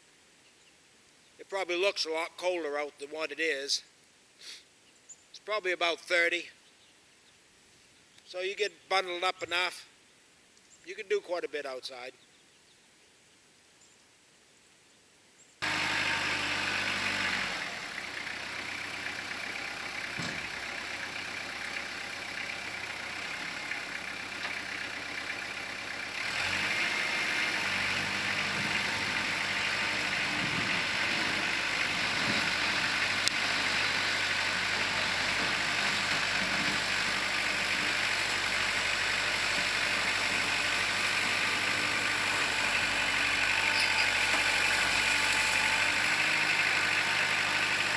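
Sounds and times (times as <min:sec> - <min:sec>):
tractor diesel engine running: 0:15.6 - 0:47.9.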